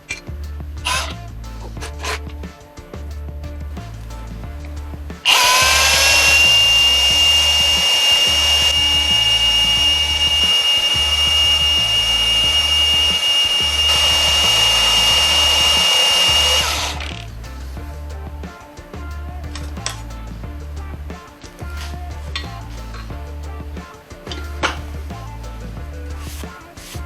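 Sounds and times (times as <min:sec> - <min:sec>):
background music with bass beat: 0:00.0 - 0:27.0
power tool motor whine: 0:05.3 - 0:17.1.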